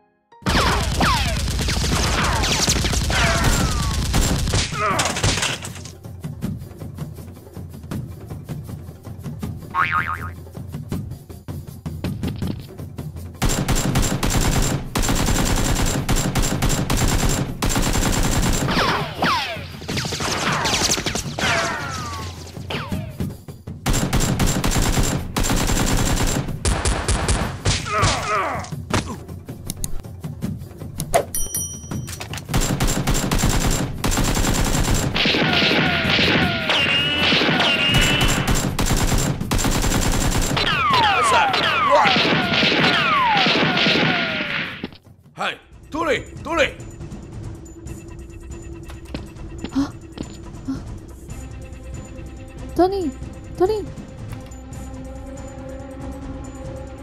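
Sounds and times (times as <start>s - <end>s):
automatic gunfire: 0.5s - 5.8s, 13.4s - 19.1s, 23.9s - 27.6s, 32.5s - 44.7s
falling whistles: 36.6s - 38.5s.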